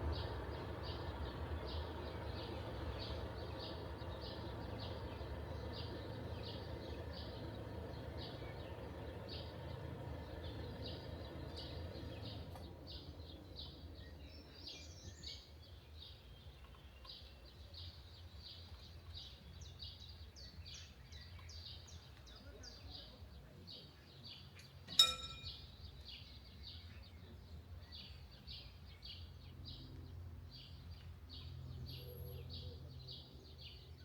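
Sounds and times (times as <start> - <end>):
low background rumble: 0.0 - 16.9.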